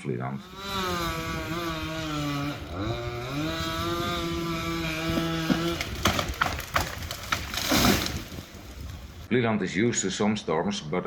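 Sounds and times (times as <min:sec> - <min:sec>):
chainsaw engine running: 0:00.3 - 0:06.5.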